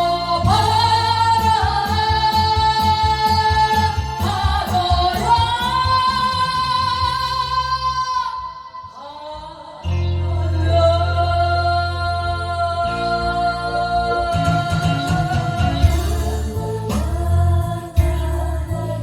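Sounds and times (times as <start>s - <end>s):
woman singing: 0.0s - 19.0s
pulsing beat: 13.7s - 19.0s.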